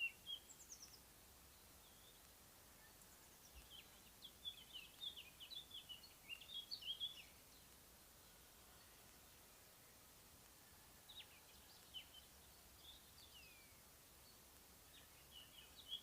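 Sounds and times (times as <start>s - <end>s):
faint background hiss: 0.0s - 16.0s
songbird singing: 0.0s - 16.0s.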